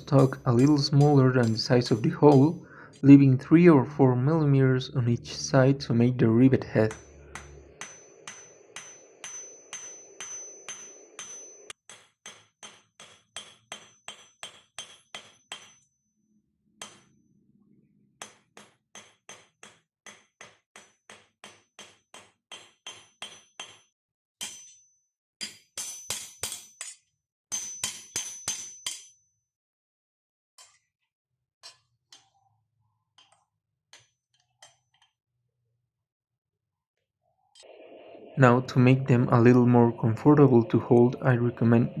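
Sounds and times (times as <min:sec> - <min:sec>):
hammer ringing on anvil: 0:00.0 - 0:02.6, 0:06.8 - 0:15.9, 0:24.4 - 0:24.8, 0:27.5 - 0:29.2.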